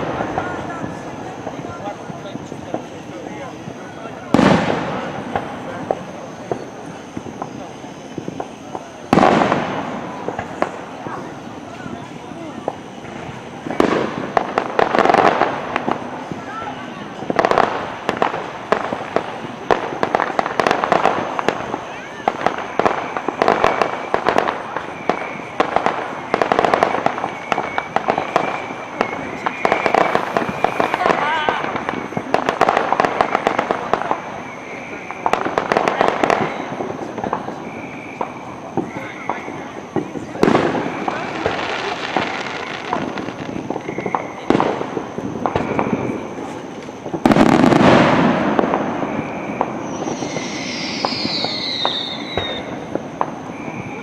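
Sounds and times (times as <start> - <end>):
firework whistle: 0.0 - 54.0
fireworks cracking and popping: 0.0 - 54.0
falling whistle: 27.3 - 31.1, 49.1 - 52.8.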